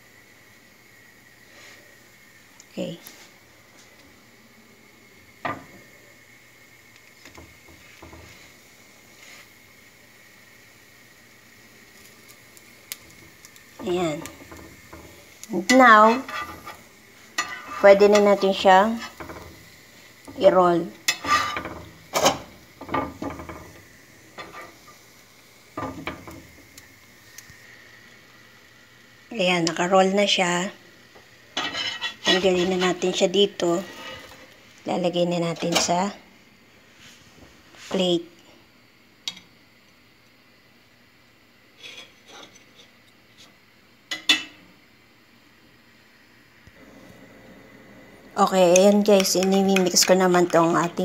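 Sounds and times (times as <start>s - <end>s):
faint sizzle: 0.0s - 51.0s
utensil scraping a frying pan: 13.8s - 19.6s, 21.0s - 23.8s, 24.4s - 25.0s, 31.5s - 34.6s, 41.8s - 43.0s.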